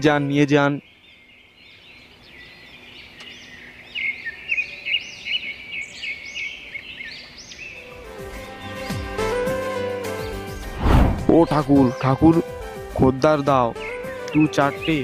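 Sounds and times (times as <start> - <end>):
birds chirping and twittering: 0.0 - 9.2, 10.1 - 12.8, 13.7 - 15.0.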